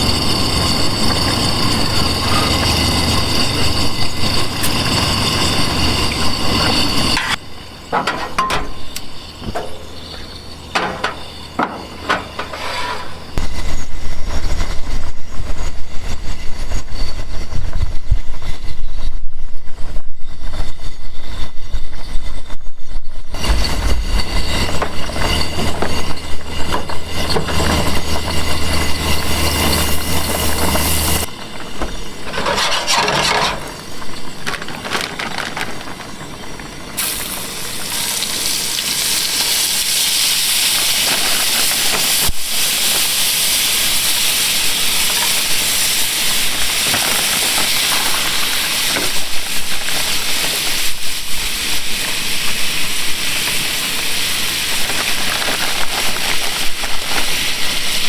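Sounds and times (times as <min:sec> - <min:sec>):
seafood sizzling in a pan: 0:37.0 - 0:58.0.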